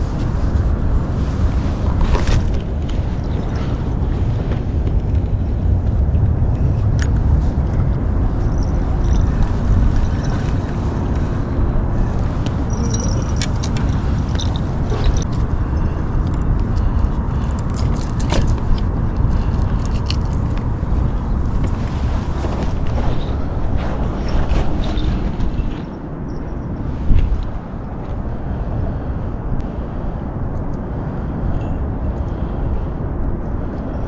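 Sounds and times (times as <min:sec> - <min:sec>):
wind buffeting microphone: 0:00.0 - 0:34.0
fishing gear clicking and scraping: 0:06.4 - 0:15.6, 0:16.2 - 0:26.0.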